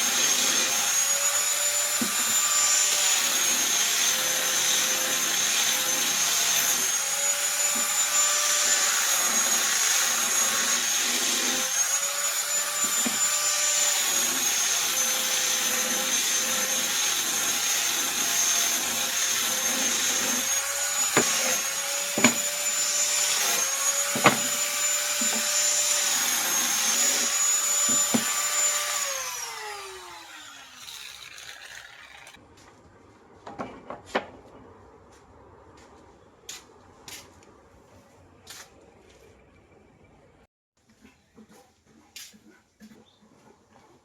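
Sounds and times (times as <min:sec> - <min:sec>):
power tool motor running: 0:00.0 - 0:32.4.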